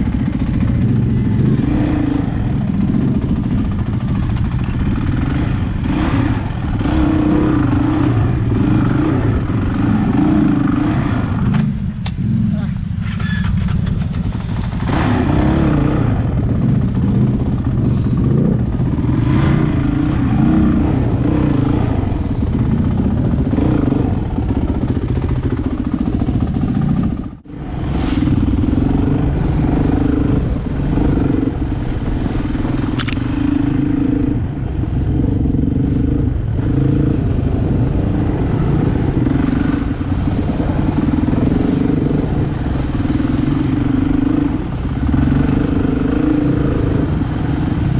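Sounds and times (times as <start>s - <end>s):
dirt bike engine revving: 0.0s - 12.6s, 14.6s - 47.9s
clatter: 2.7s - 5.4s, 13.0s - 18.8s, 32.7s - 33.5s.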